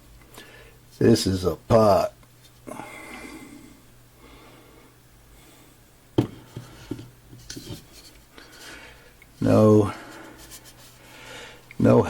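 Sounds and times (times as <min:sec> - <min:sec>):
knocks on clay pot: 0:06.2 - 0:06.4
rubbing on clay pot: 0:10.0 - 0:11.0.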